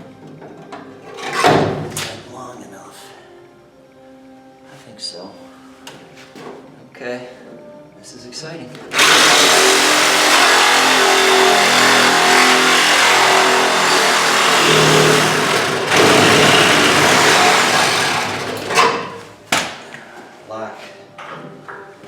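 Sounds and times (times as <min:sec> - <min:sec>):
reciprocating saw cutting: 0:08.9 - 0:19.2.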